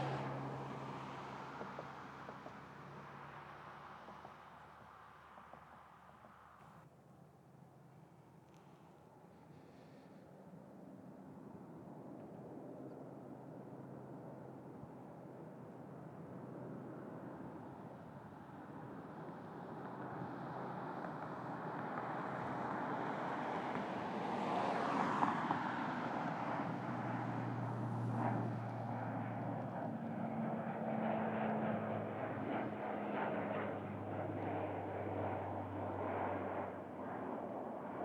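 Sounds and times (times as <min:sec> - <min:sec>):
airplane engine rumble: 0:26.2 - 0:37.8.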